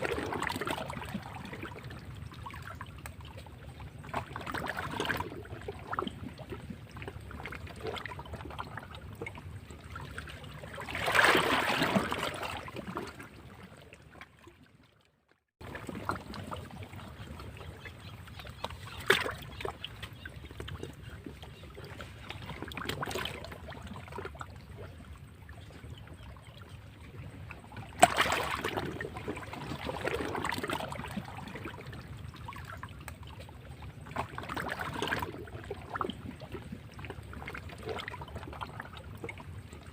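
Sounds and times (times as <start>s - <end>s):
sharp water splashes: 10.7s - 13.2s, 18.9s - 19.7s, 27.9s - 31.2s.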